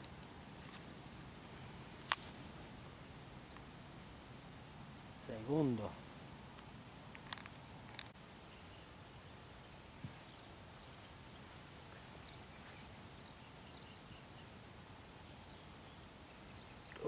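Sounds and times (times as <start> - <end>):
faint steady hiss: 0.0 - 17.0
bird chirping: 8.4 - 17.0.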